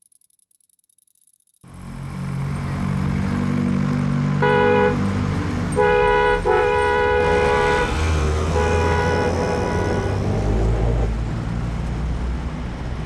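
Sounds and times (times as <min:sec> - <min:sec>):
traffic engines: 0:01.7 - 0:13.0
vehicle horn honking: 0:04.4 - 0:05.1, 0:05.8 - 0:10.5.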